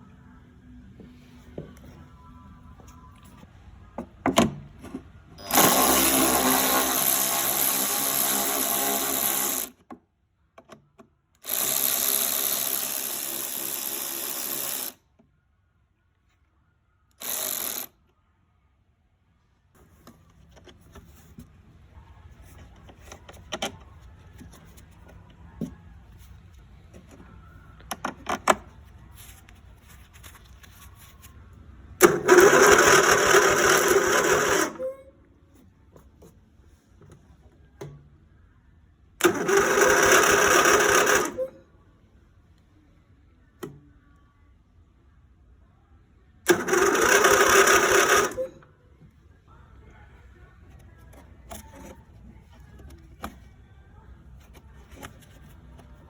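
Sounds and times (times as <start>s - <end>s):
electric starter cranking engine: 5.4s - 9.8s, 32.0s - 34.9s, 39.2s - 41.5s, 46.5s - 48.5s.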